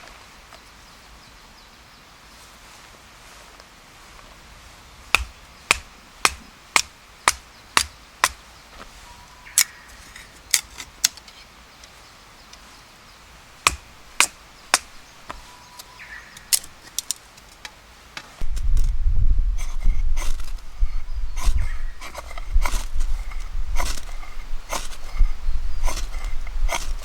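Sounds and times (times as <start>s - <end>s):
blade chopping: 5.1s - 8.4s, 13.6s - 15.0s, 21.4s - 27.0s.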